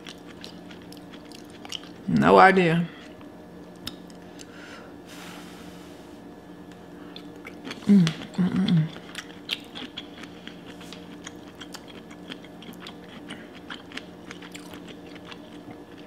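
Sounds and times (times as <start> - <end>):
person chewing food: 0.0 - 2.1, 7.1 - 16.0
faint steady hum: 0.0 - 16.0
person humming: 7.8 - 9.0.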